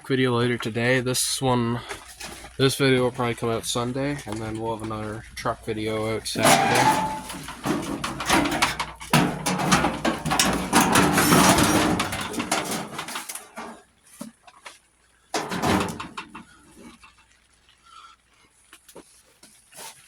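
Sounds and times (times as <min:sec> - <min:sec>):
tools and metal parts clattering: 0:01.8 - 0:13.8, 0:15.3 - 0:16.8
squeaking: 0:02.1 - 0:13.8, 0:15.4 - 0:16.6.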